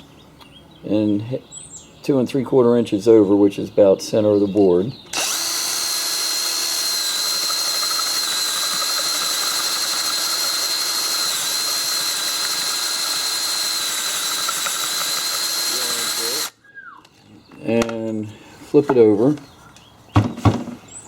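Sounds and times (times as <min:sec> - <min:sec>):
electric drill boring wood: 0:05.1 - 0:16.5.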